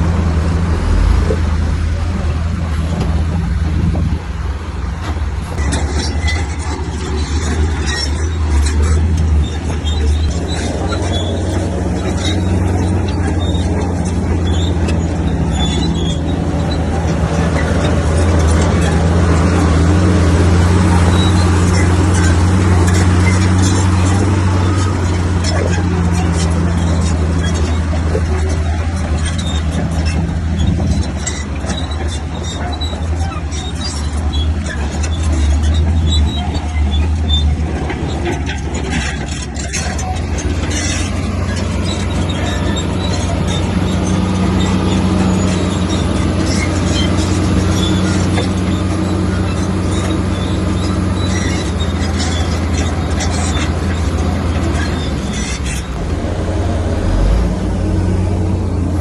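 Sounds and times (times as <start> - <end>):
bulldozer diesel engine running: 0.0 - 59.0
clicks and clanks: 21.2 - 50.2.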